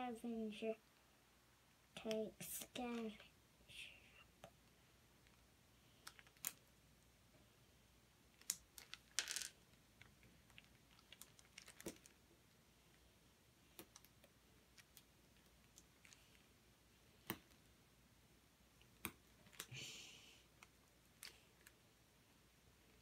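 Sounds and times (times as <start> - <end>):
loose pieces rattling: 8.4 - 9.6
plastic bricks clicking and snapping: 8.4 - 12.2.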